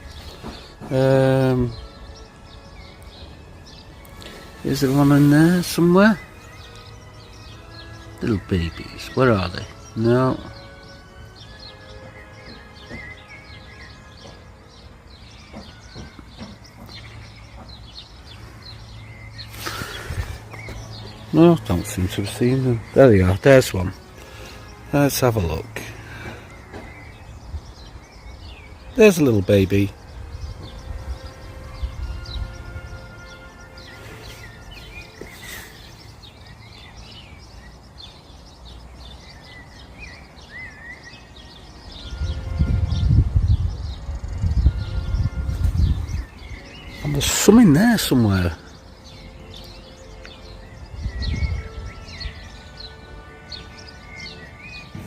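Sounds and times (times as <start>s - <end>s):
birds chirping: 0.0s - 55.0s
wind rumble on microphone: 29.9s - 33.0s, 41.8s - 47.0s, 50.7s - 52.5s.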